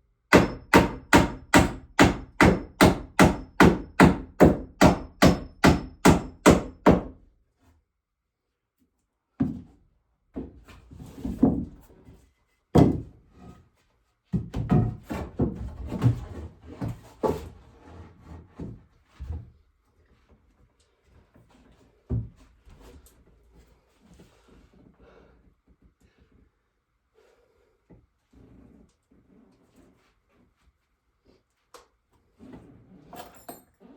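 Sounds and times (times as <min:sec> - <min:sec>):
wooden knocks from carpentry: 0:12.8 - 0:13.1.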